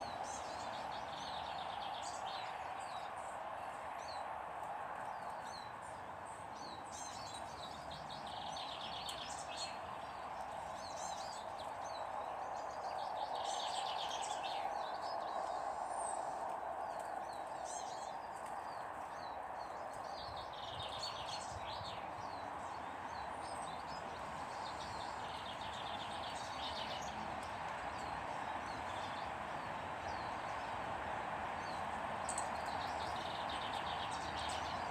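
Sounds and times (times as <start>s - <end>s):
birds chirping and twittering: 0.0s - 34.9s.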